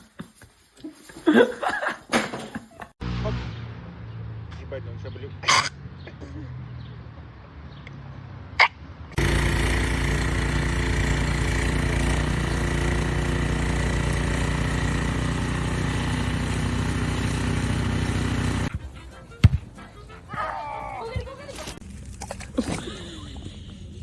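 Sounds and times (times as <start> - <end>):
motor humming: 9.2 - 18.7.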